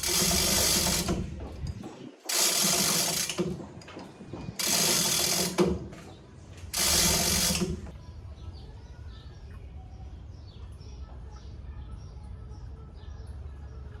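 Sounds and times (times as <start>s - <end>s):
clattering mechanism: 0.0s - 8.0s.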